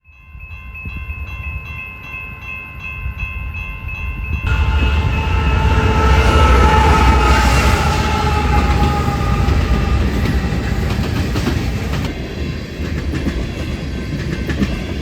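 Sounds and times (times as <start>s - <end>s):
crossing bell ringing: 0.0s - 12.0s
freight train rumbling: 4.2s - 15.0s
steady locomotive tones: 4.4s - 15.0s.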